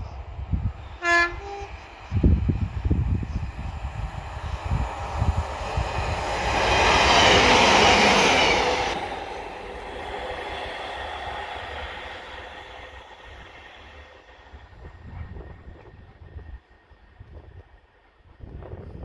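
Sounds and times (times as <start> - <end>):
diesel train passing: 0.0 - 19.0.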